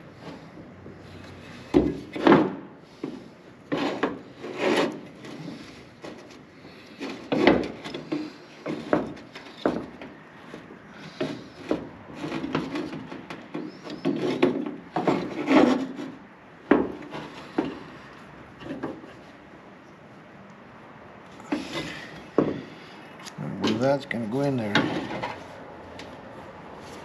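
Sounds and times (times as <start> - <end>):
scraping and rubbing strokes: 3.7 - 7.4.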